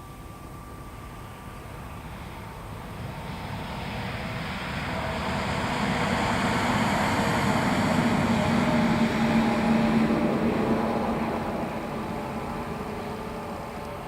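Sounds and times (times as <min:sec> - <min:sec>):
freight train engine rumble: 0:00.0 - 0:14.0.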